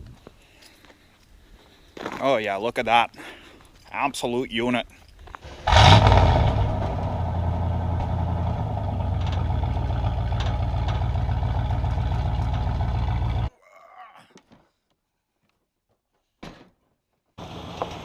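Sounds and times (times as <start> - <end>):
car engine starting and idling: 5.7 - 13.5, 17.4 - 18.0.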